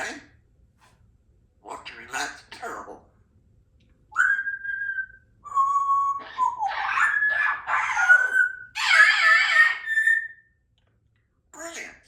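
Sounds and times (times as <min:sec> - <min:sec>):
parrot whistling: 0:04.1 - 0:10.5
parrot harsh raspy calls: 0:06.1 - 0:10.5.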